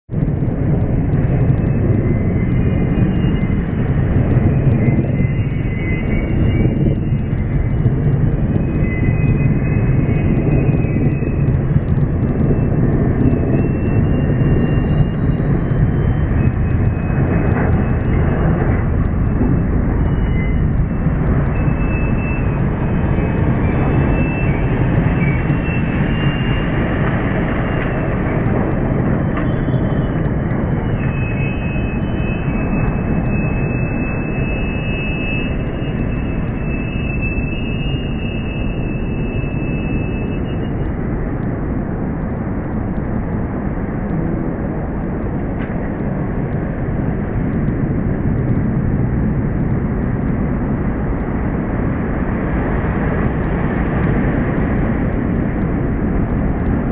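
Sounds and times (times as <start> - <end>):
thin high whine: 0.2 - 41.2.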